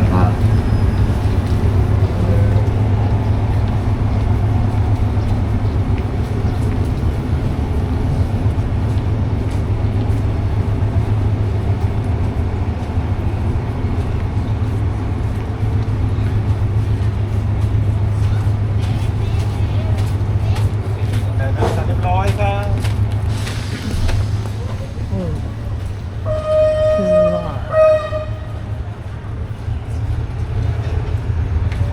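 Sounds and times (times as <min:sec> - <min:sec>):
diesel train engine droning: 0:00.0 - 0:31.9.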